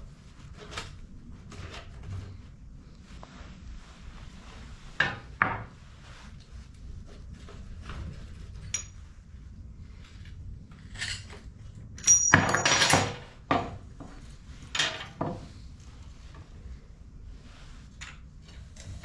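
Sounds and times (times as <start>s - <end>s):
metal tools clinking: 8.7s - 9.0s, 12.0s - 13.2s.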